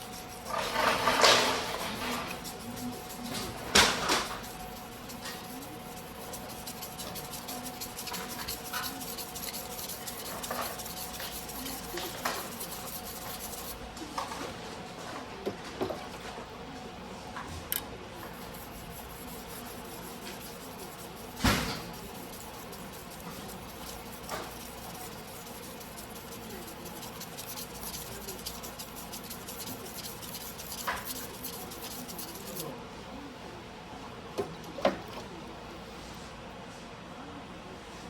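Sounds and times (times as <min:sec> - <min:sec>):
knife scraping on whetstone: 0:00.0 - 0:13.8, 0:18.4 - 0:32.6.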